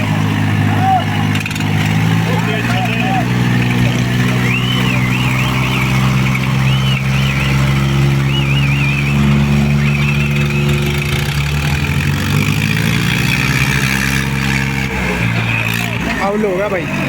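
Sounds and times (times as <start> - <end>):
diesel tractor engines straining: 0.0 - 17.0
high warbling whistles: 2.3 - 11.3.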